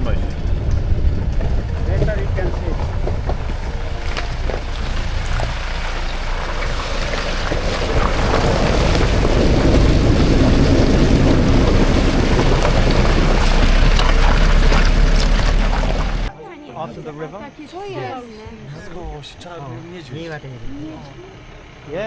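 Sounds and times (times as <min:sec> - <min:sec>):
jeep engine and road rumble: 0:00.0 - 0:16.3, 0:17.0 - 0:22.0
wind buffeting microphone: 0:00.0 - 0:16.3.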